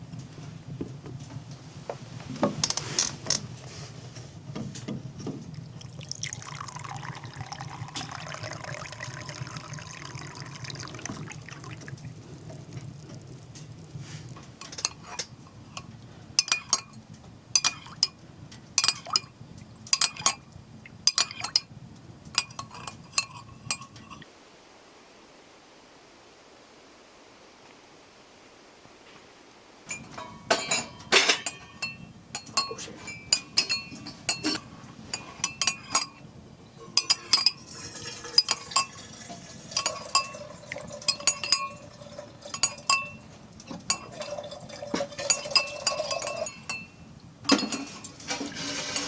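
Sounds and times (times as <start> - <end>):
liquid pouring into container: 5.6 - 14.4, 37.0 - 46.6.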